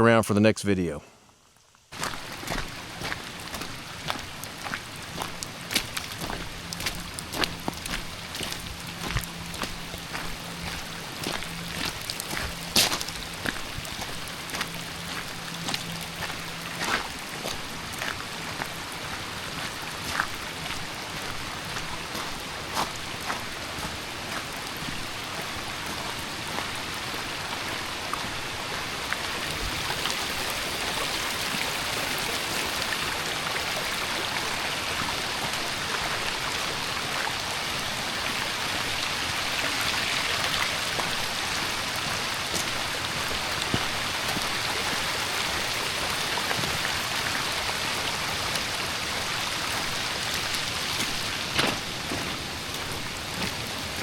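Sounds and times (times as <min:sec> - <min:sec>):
runoff rushing over gravel: 0:01.9 - 0:33.0
heavy rain downpour: 0:02.0 - 0:54.0.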